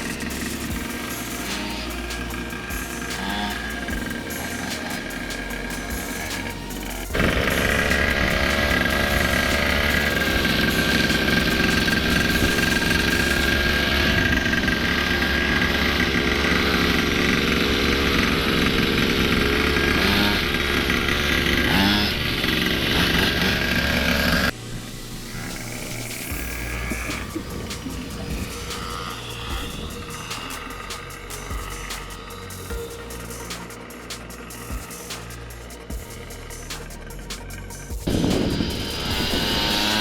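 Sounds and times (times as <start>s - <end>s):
motorcycle engine running: 0.0s - 24.5s.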